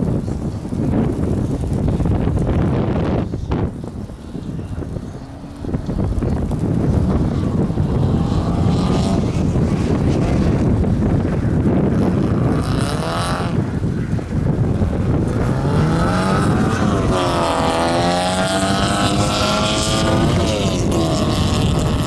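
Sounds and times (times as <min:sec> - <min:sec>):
car engine revving: 0:04.8 - 0:13.9, 0:14.6 - 0:22.0.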